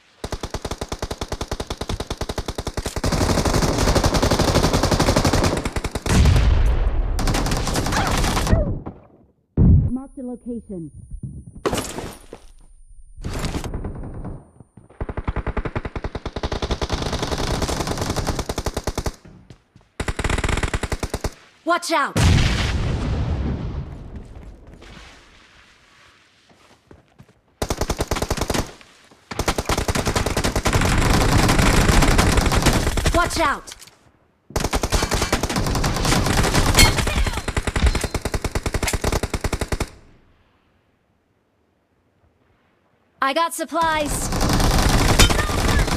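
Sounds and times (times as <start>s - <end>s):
video game automatic gunfire: 29.4s - 33.3s, 44.0s - 45.9s.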